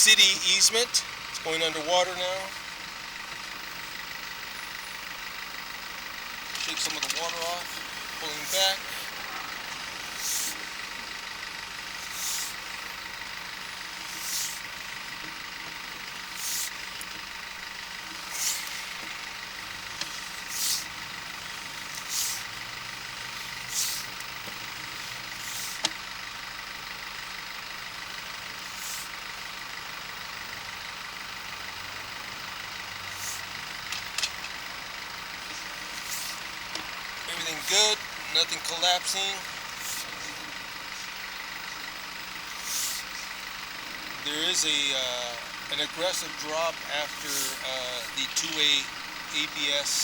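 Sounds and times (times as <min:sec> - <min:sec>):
steady machine hum: 0:00.0 - 0:50.0.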